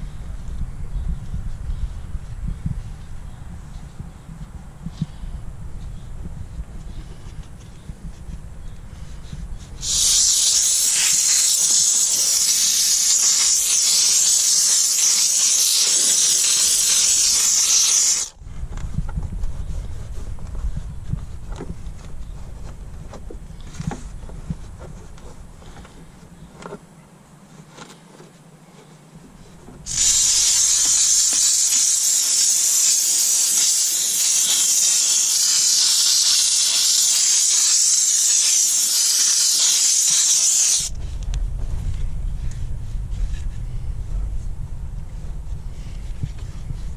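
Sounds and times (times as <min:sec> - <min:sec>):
steam cleaner hissing: 0:09.8 - 0:18.3, 0:29.9 - 0:40.9.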